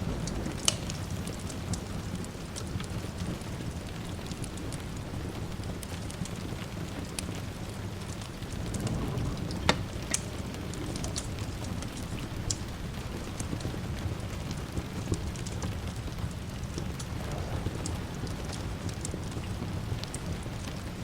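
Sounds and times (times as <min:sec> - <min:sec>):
steady rain hiss: 0:00.0 - 0:21.0
wood fire crackling and popping: 0:00.0 - 0:21.0
distant thunder rumble: 0:06.8 - 0:21.0.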